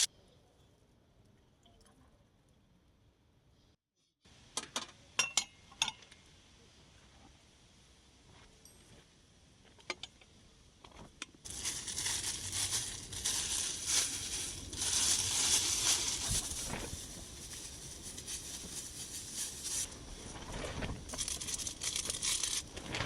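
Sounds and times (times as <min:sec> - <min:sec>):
dense crinkling crackling: 0:11.4 - 0:23.0.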